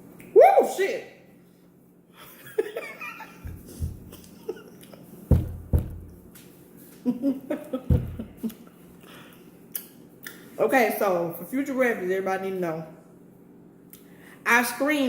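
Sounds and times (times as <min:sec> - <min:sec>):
dull low thumps: 0:03.4 - 0:04.2, 0:05.3 - 0:06.2, 0:07.9 - 0:08.4.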